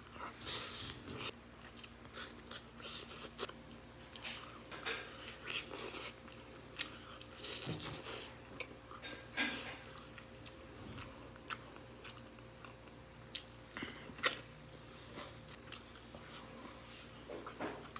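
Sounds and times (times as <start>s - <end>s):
man chewing chicken: 0.0s - 17.9s.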